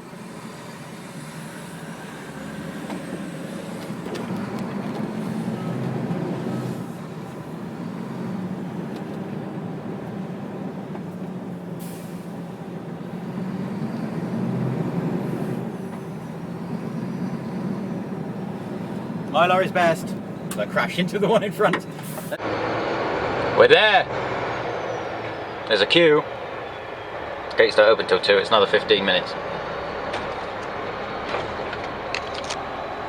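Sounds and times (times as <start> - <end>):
diesel lorry engine: 0.0 - 33.0.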